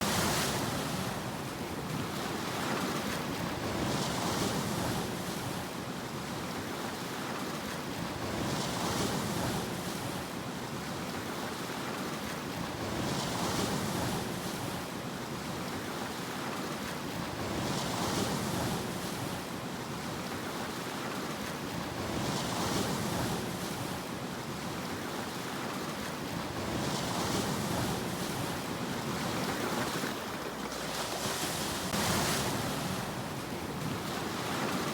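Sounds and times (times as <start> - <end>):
sea waves breaking: 16.8 - 34.9.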